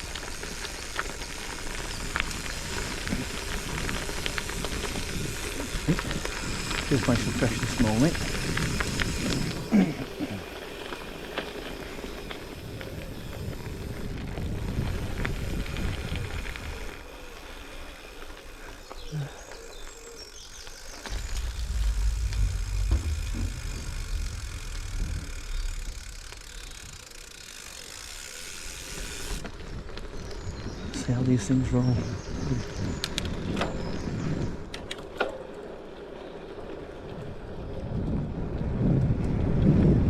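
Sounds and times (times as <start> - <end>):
bike rattling: 0.0 - 40.0
bike tyres rolling on gravel: 0.0 - 40.0
wind rumble on microphone: 1.3 - 9.7, 12.2 - 17.0, 21.1 - 27.3, 31.8 - 34.9, 36.7 - 40.0.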